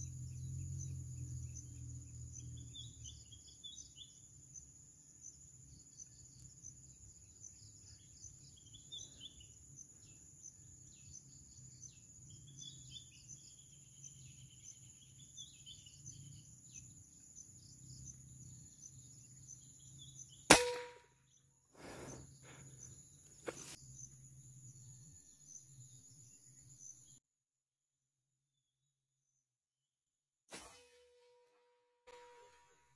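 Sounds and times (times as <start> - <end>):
insects chirring: 0.2 - 27.1
air rifle shot: 20.5 - 21.1, 30.5 - 30.9.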